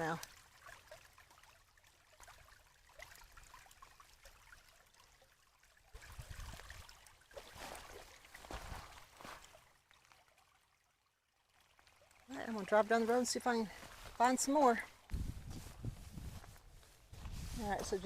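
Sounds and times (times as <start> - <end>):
rainwater trickling in ditch: 0.0 - 18.0
dull thumps and rustles: 8.4 - 9.4.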